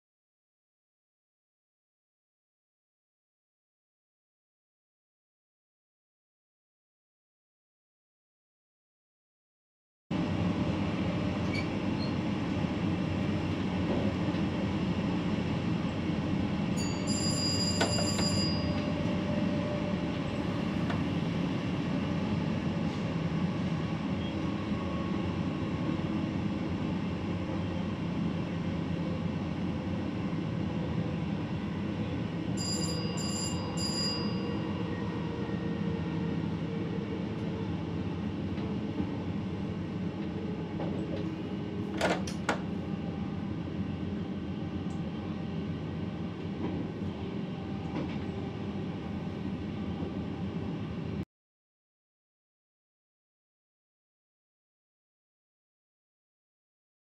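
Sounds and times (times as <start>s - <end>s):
train running noise in cab: 10.1s - 51.2s
cab signal bell ringing: 16.8s - 18.8s, 32.6s - 34.6s.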